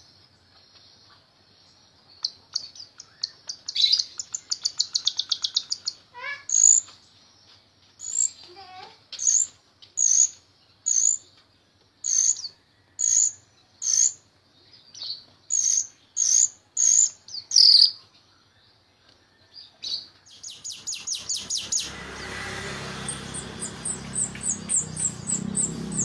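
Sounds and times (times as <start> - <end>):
starling singing high notes: 20.7 - 26.0.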